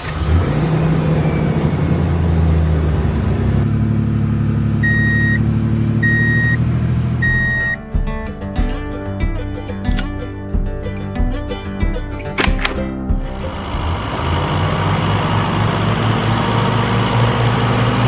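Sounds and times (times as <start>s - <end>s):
reversing alarm beeps: 4.8s - 5.4s, 6.0s - 6.6s, 7.2s - 7.8s
truck engine idling: 13.3s - 18.0s.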